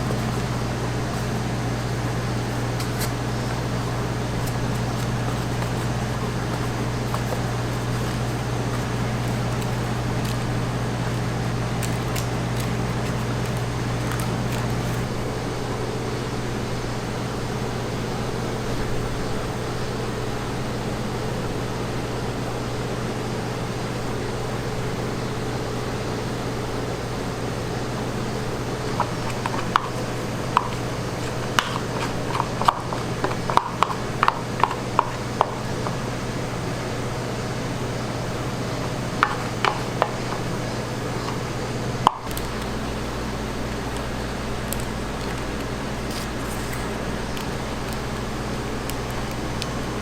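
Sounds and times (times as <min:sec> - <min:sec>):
steady low hum: 0:00.0 - 0:50.0
kitchen clicks and taps: 0:28.8 - 0:36.0, 0:39.2 - 0:41.4.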